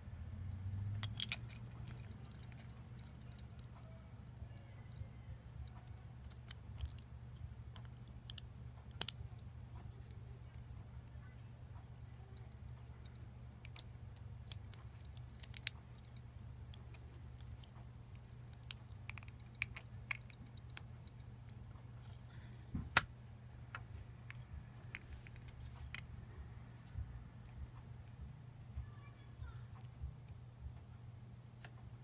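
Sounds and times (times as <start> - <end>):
steady low hum: 0.0 - 32.0
small parts clicking and tapping: 0.5 - 10.8, 11.7 - 23.1, 23.7 - 26.1.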